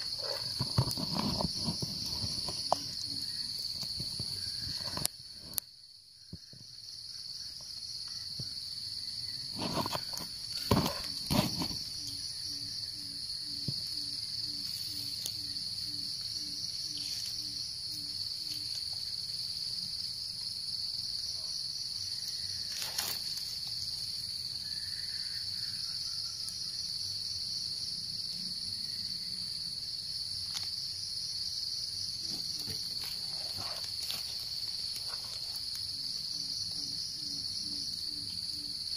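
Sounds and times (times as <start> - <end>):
sharp knocks and rustles: 0.0 - 5.1, 9.5 - 12.0
insect chorus chirring: 0.0 - 38.9.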